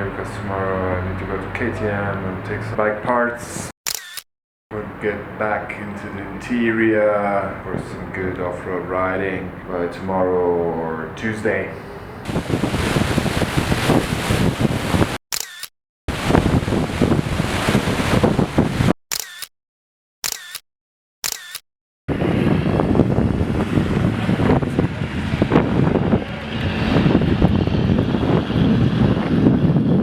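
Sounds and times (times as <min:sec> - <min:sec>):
road noise: 0:00.0 - 0:03.7, 0:22.1 - 0:29.9
wind rushing on microphone: 0:11.8 - 0:15.2, 0:16.1 - 0:19.0, 0:22.1 - 0:30.0.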